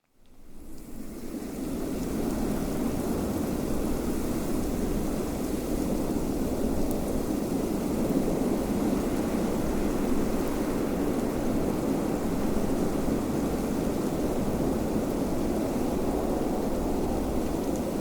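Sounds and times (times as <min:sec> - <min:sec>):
steady wind blowing: 0:04.7 - 0:18.0.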